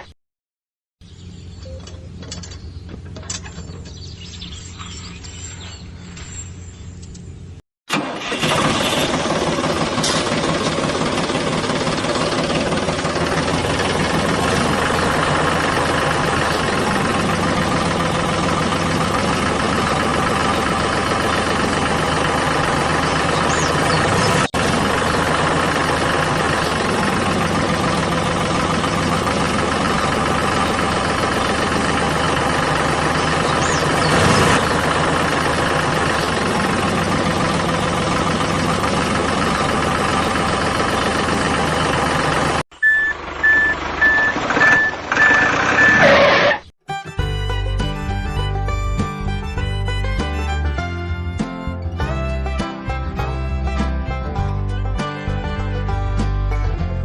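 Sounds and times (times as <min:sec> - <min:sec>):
model tractor motor running: 0:07.9 - 0:42.6, 0:43.2 - 0:46.6.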